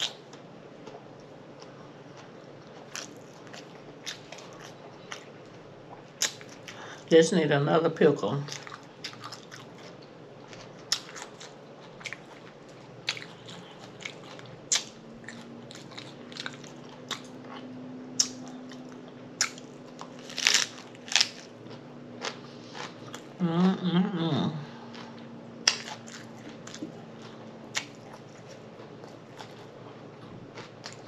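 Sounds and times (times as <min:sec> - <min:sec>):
chewing food: 0:00.0 - 0:06.8, 0:08.5 - 0:23.4, 0:24.7 - 0:31.0
crisp crunches: 0:19.4 - 0:21.5.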